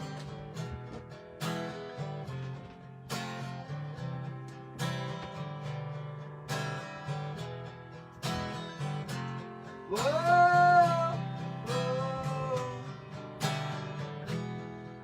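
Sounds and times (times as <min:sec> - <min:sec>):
acoustic guitar strumming: 0:00.0 - 0:15.0
person singing: 0:09.9 - 0:12.9.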